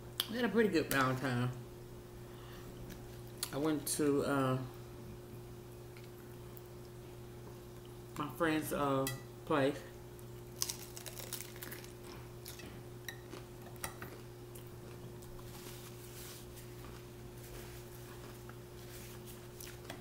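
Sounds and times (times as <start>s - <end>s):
low electrical hum: 0.0s - 20.0s
crunching hard-shell taco: 10.3s - 15.5s.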